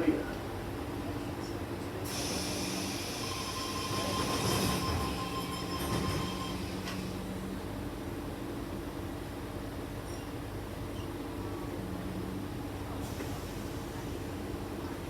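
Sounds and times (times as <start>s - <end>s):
electric train whine: 2.1s - 8.6s.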